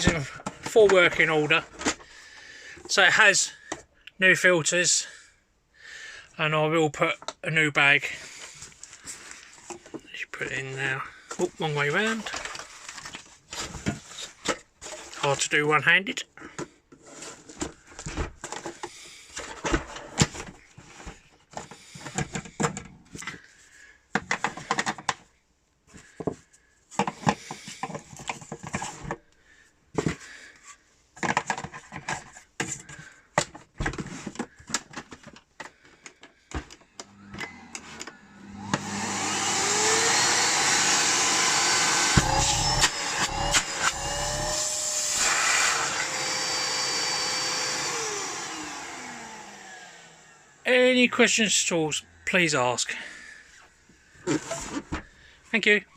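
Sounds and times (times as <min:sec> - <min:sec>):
vacuum lid shutting: 0:37.0 - 0:50.2
vacuum cleaner motor running: 0:37.0 - 0:50.6.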